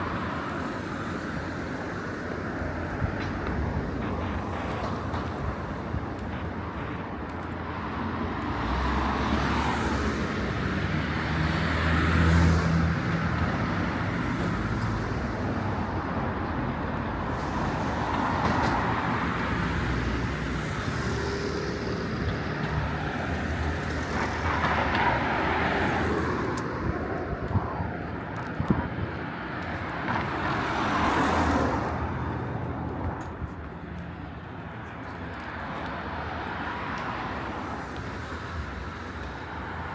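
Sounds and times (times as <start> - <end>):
vehicles passing: 0.0 - 39.9.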